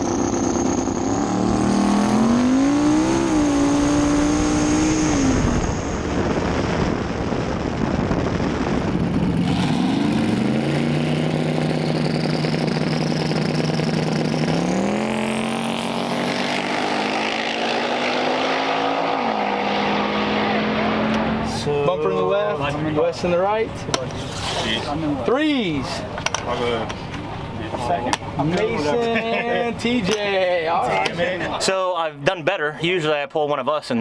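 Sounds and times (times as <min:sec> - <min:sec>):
thin high whine: 0:00.0 - 0:07.5
race car engine revving: 0:00.0 - 0:07.8, 0:08.6 - 0:22.0.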